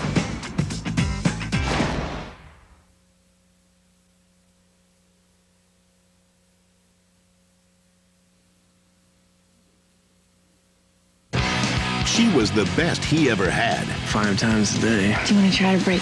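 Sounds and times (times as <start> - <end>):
faint steady hum: 2.4 - 11.4.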